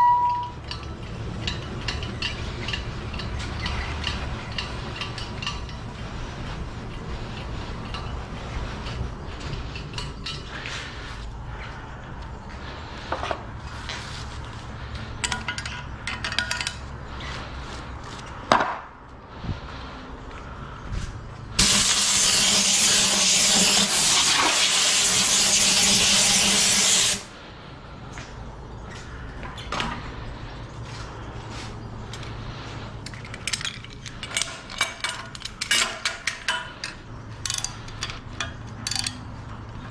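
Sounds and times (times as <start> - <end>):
tool clinks and knocks: 0.0 - 5.9, 15.2 - 16.9, 33.0 - 39.3
low hum: 0.0 - 16.1
loud hissing rush: 21.5 - 27.5.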